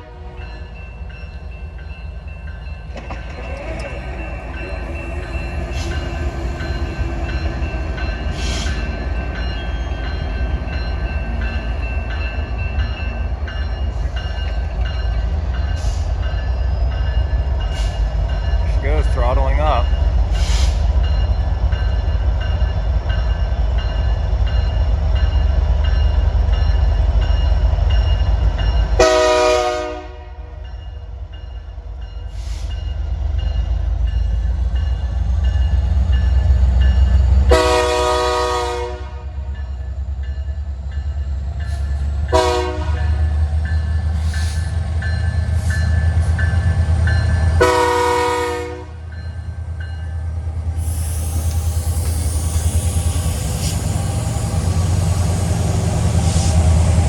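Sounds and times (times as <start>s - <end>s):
train air horn blasts: 0.0s - 0.4s, 29.0s - 30.6s, 37.5s - 39.4s, 42.3s - 43.2s, 47.6s - 49.0s
locomotive engine rumbling: 0.0s - 57.0s.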